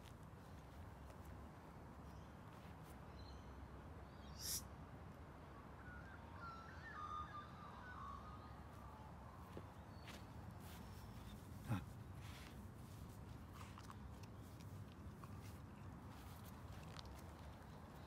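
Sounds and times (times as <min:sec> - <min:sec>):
distant bird calls: 0:05.8 - 0:12.6.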